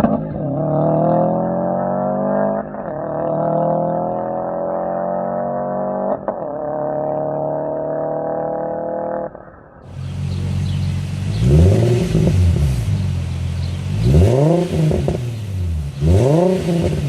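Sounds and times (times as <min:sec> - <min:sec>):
car engine accelerating hard: 0:09.9 - 0:17.0.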